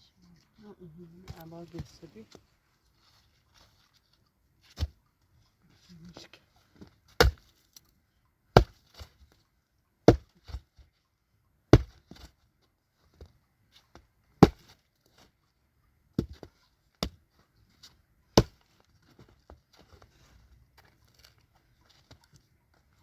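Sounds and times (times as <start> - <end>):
sharp chopping strikes: 7.2 - 7.4, 8.6 - 8.8, 11.8 - 12.0.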